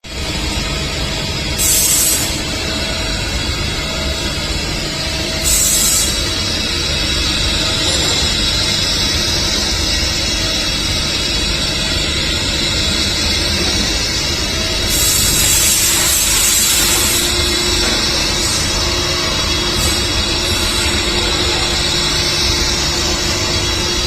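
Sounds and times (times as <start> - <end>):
machine running: 0.0 - 24.0
loud spray hiss: 1.6 - 2.4, 14.8 - 23.3.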